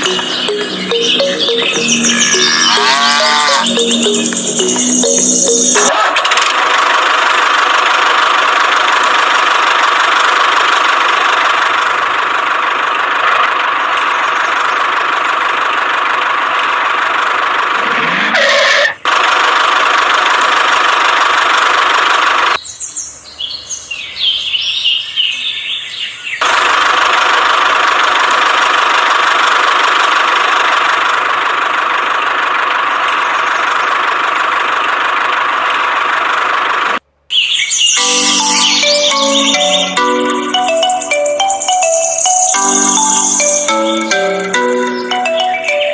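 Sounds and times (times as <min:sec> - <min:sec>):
high chirps: 0:00.0 - 0:05.9, 0:37.3 - 0:45.9.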